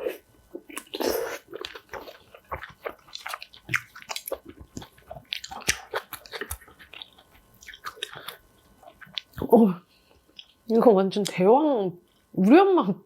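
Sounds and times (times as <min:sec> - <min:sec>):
wet crunchy chewing: 0:00.0 - 0:09.6.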